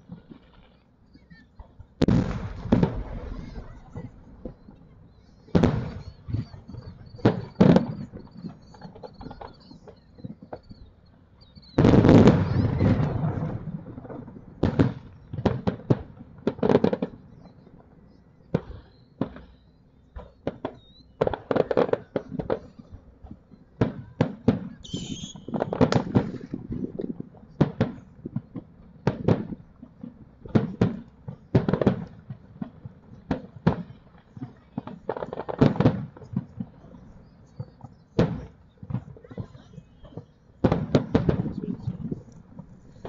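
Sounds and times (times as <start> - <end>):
firework shells bursting: 24.8 - 29.6.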